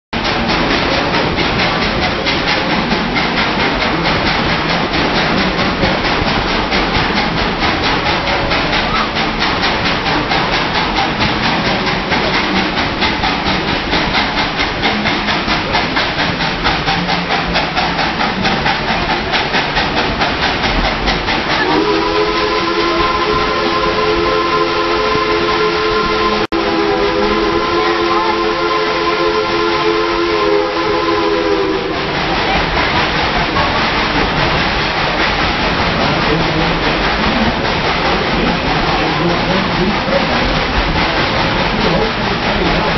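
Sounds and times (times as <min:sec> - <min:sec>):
steam train hissing clatter: 0:00.2 - 0:42.9
steam whistle: 0:21.5 - 0:32.6.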